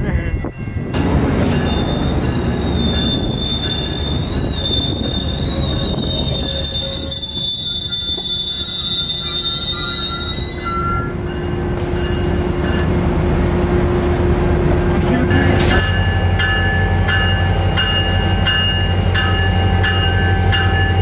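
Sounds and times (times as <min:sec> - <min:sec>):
train rumbling past: 0:00.0 - 0:21.0
high-pitched wheel squeal: 0:01.6 - 0:11.1.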